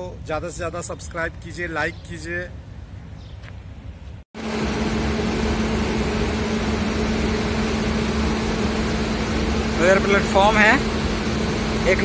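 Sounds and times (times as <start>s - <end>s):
train machine hum: 4.4s - 12.0s.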